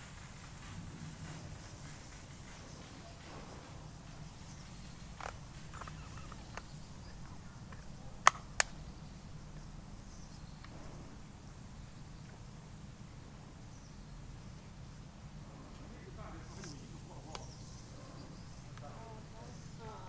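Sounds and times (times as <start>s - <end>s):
sharp clicks: 5.2s - 8.8s.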